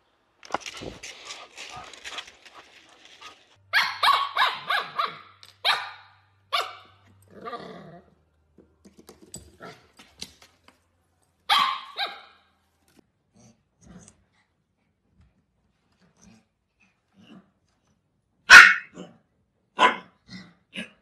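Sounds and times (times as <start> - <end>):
puppy yipping and barking: 3.7 - 6.9, 11.5 - 12.4, 18.5 - 19.0.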